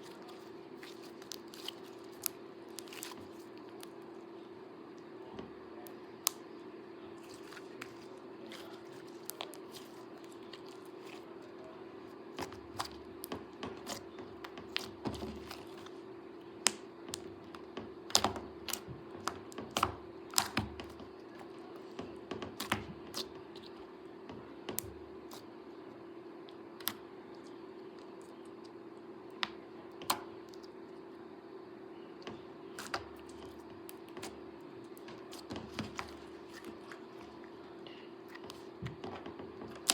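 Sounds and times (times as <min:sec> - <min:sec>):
low steady hum: 0:00.0 - 0:39.9
slime clicking and popping: 0:18.1 - 0:20.7.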